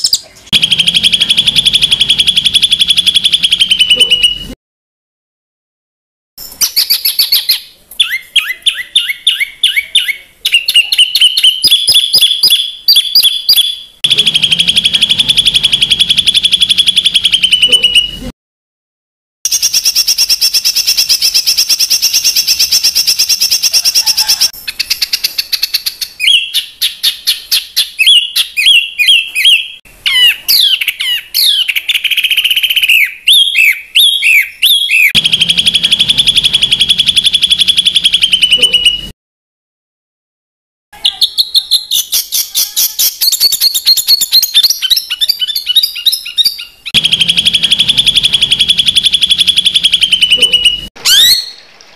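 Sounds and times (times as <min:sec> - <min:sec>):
songbird trills: 0:41.2 - 0:51.6.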